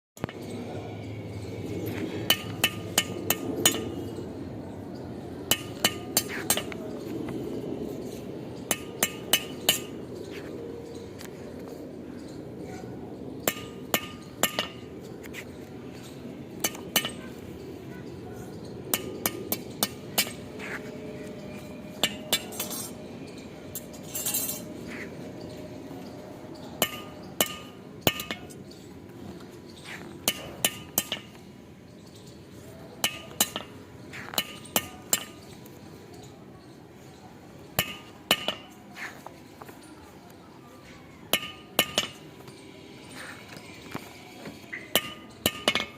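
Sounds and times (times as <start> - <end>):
hammer striking steel: 2.2 - 4.0, 5.5 - 6.8, 8.7 - 10.0, 13.4 - 14.9, 16.6 - 17.4, 18.9 - 20.8, 21.9 - 23.0, 26.8 - 28.6, 30.2 - 31.4, 33.0 - 35.5, 37.8 - 38.8, 41.3 - 42.3, 44.7 - 45.9.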